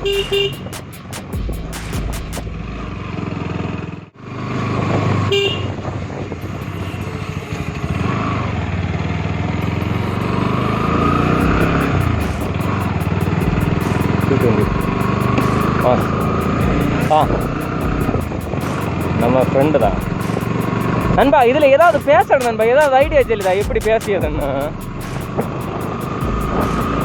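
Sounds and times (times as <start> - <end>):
short horn beep: 0.0 - 0.8
motorcycle engine running: 0.0 - 27.0
wind noise: 5.6 - 6.8.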